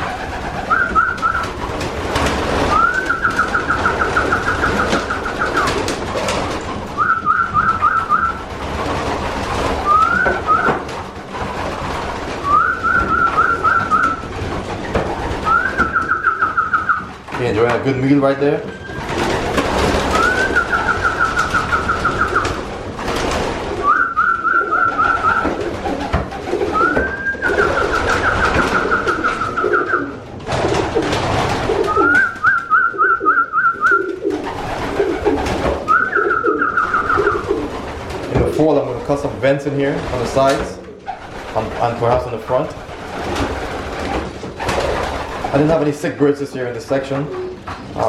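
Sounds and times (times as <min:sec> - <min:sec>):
pigeons cooing: 0:00.0 - 0:17.3, 0:18.7 - 0:39.2
pigeons shuffling: 0:00.0 - 0:48.0
high quavering whistle: 0:00.7 - 0:01.4, 0:02.7 - 0:05.6, 0:07.0 - 0:08.4, 0:20.2 - 0:22.5, 0:23.8 - 0:25.4, 0:31.9 - 0:34.1, 0:35.9 - 0:37.3
high bird chirping: 0:02.7 - 0:05.7, 0:07.0 - 0:08.4, 0:20.1 - 0:22.6, 0:35.9 - 0:37.5.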